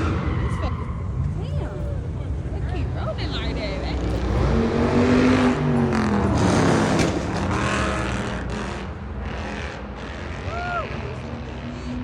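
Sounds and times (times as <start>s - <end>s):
car driving past: 3.9s - 12.0s.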